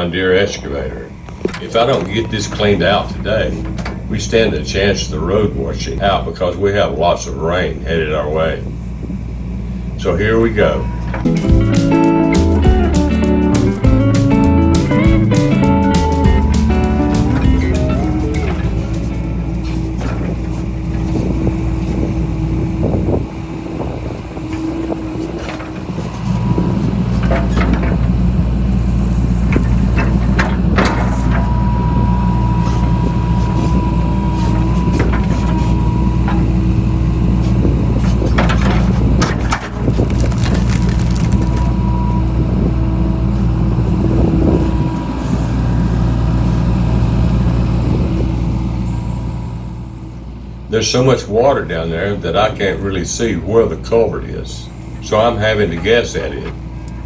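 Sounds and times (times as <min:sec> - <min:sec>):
thin steady whine: 0:00.0 - 0:13.2, 0:15.4 - 0:37.9
excavator diesel engine working: 0:10.7 - 0:51.1, 0:51.7 - 0:57.0
debris knocking and cracking: 0:39.6 - 0:41.8.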